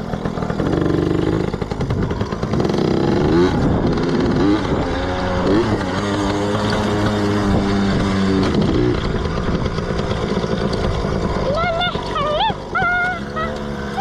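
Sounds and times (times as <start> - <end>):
two-stroke motorbike engine revving: 0.0 - 14.0.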